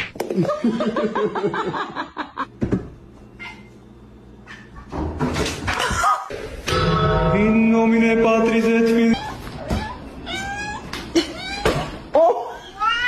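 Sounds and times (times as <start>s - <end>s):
steady low hum: 6.6s - 10.2s.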